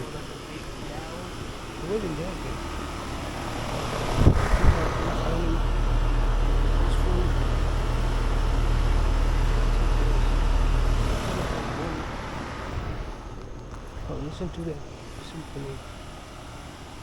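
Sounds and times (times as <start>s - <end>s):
air conditioner units humming: 0.0s - 17.0s.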